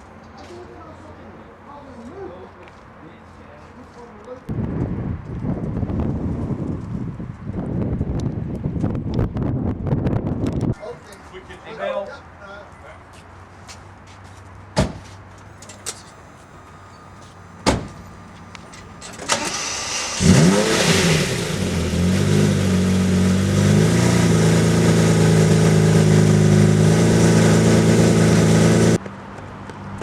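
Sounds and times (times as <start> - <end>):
car engine starting and idling: 15.5 - 29.0.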